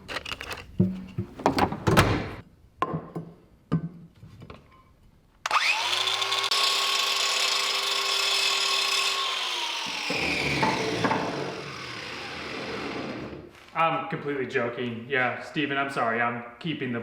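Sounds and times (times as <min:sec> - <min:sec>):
power tool motor whirring: 0:05.5 - 0:13.4.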